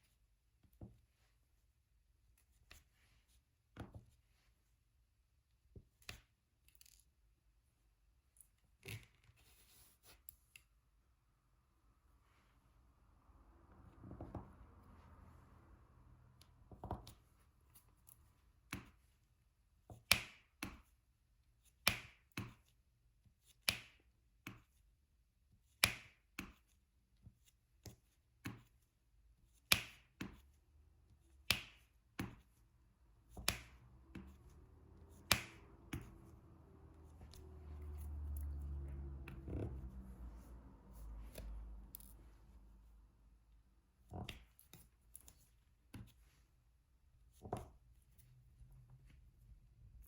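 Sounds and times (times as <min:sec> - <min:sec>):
soft rustle of handling: 0:00.0 - 0:05.1, 0:08.2 - 0:10.8.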